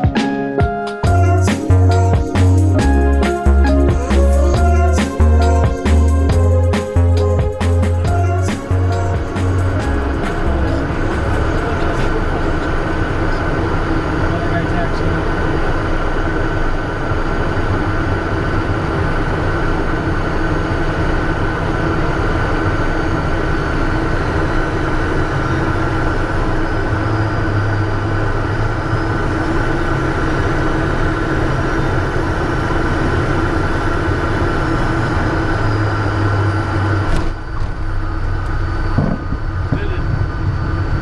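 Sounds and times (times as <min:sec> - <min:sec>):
steady whining tones: 0:00.0 - 0:41.0
aircraft engines in cockpit: 0:10.0 - 0:41.0.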